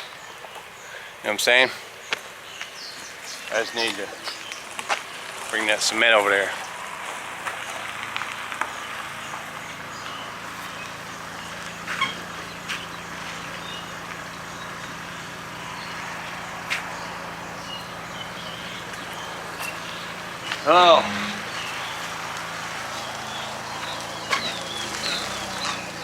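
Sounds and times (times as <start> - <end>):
car engine idling: 2.3 - 26.0
faint bird chirps: 9.6 - 22.2.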